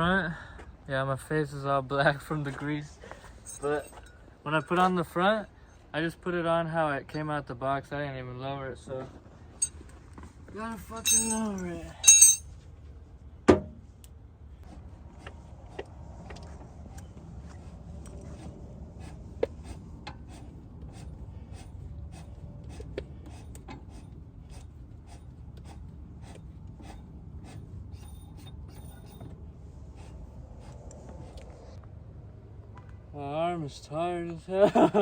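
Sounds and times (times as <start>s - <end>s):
low steady rumble: 0.0s - 34.4s
metallic clicks and scrapes: 17.9s - 31.8s.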